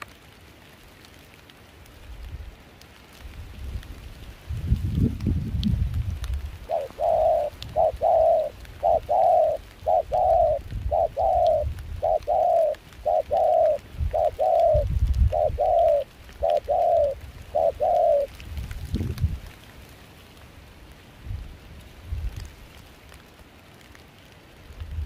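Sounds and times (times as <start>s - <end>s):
low wind rumble: 3.3s - 19.6s, 21.1s - 22.7s
dove cooing: 6.6s - 18.4s.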